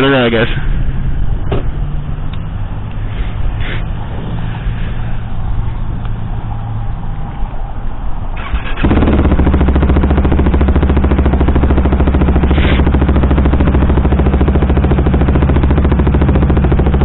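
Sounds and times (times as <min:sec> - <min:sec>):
motorcycle engine starting and idling: 0:08.4 - 0:17.0.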